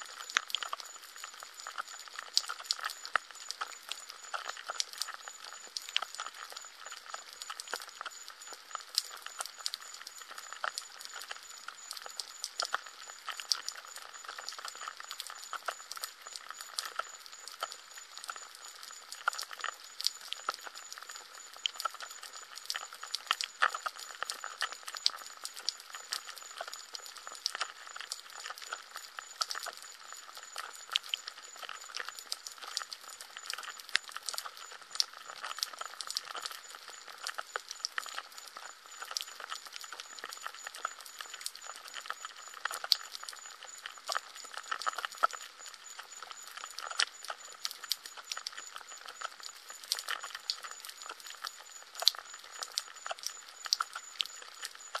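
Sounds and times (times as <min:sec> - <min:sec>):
raindrops ticking close by: 0:00.0 - 0:55.0.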